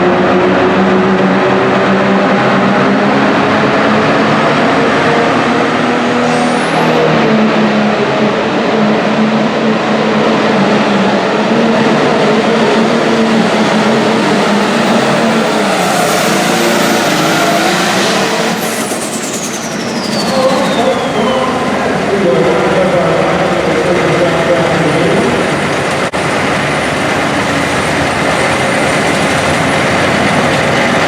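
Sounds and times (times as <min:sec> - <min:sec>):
diesel engine running flat out: 0:00.0 - 0:31.0
high turbo whistle: 0:13.0 - 0:25.5.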